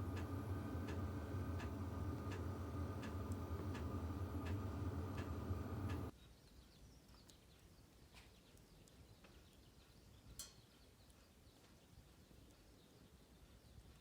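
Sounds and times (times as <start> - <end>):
fire flame rumble: 0.0 - 6.1
wood fire crackling: 0.0 - 6.1.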